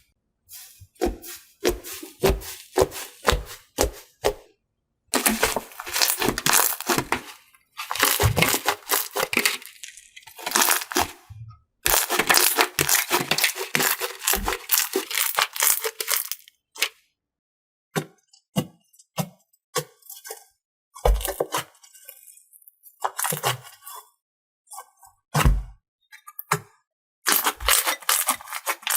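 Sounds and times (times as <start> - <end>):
slime crackling and popping: 5.2 - 11.2, 11.9 - 16.5.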